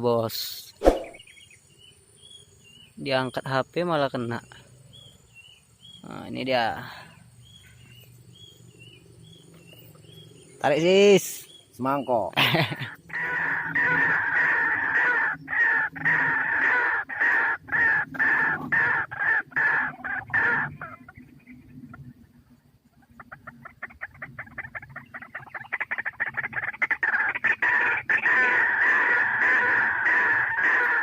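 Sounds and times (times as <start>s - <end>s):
waterhen calling harshly: 13.1s - 21.1s, 25.7s - 31.0s.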